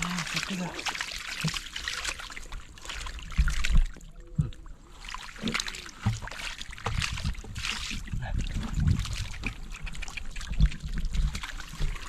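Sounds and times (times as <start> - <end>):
splashing in shallow water: 0.0 - 12.0
low thumps and knocks: 5.4 - 12.0.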